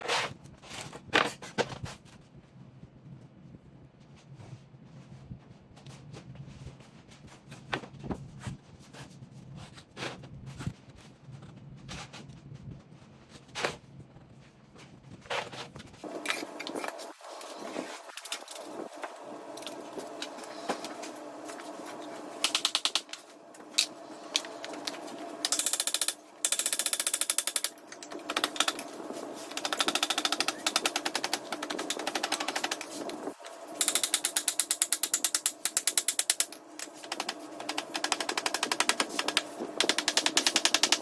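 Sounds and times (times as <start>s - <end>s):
motor hum: 16.0s - 41.0s
power tool rattling strokes: 16.0s - 41.0s.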